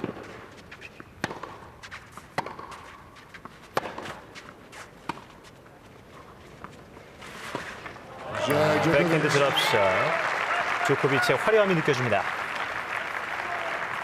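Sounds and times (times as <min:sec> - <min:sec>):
tennis ball hit by rackets: 0:01.0 - 0:05.3.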